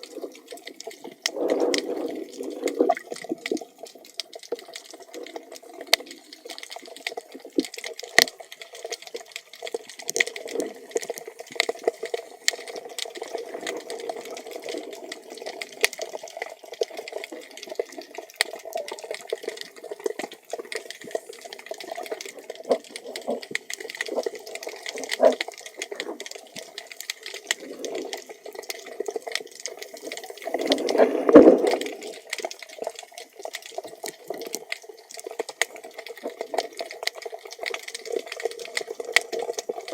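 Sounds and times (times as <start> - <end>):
sharp clicks and crackles: 0.0 - 39.9
underwater water wash: 0.0 - 39.9
surge of moving water: 9.8 - 34.6.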